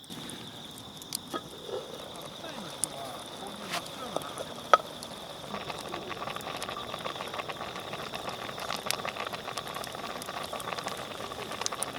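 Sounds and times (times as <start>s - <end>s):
bonfire crackling and popping: 0.0s - 11.9s
high insect trill: 0.0s - 11.9s.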